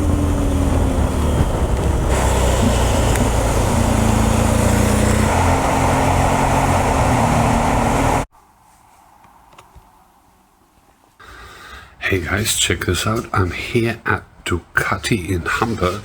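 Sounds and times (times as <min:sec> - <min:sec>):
motorcycle engine running: 0:00.0 - 0:08.3
wind and road noise: 0:00.0 - 0:14.4.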